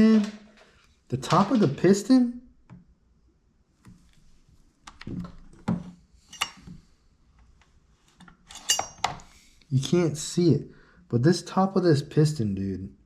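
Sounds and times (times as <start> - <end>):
tool handling clicks and knocks: 4.9 - 9.3.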